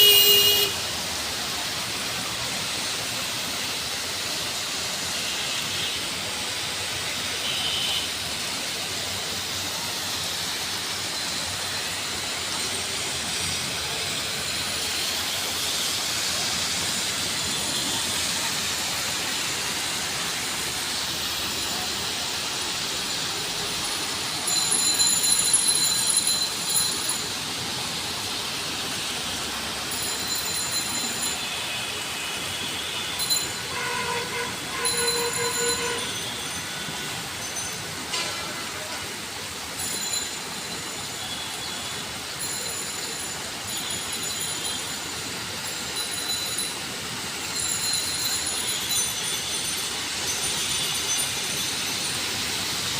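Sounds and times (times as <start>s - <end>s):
steady rain falling: 0.0s - 52.9s
high ringing tone: 23.8s - 27.4s, 29.9s - 38.3s, 39.8s - 41.4s, 42.4s - 52.4s.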